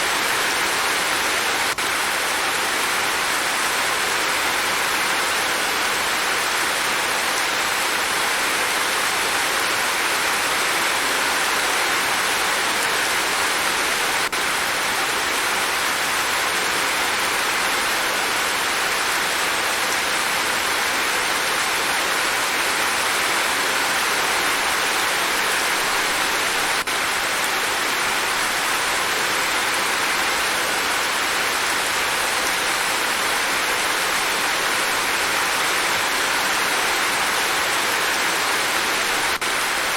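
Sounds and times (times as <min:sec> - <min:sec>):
steady dense rain: 0:00.0 - 0:39.9.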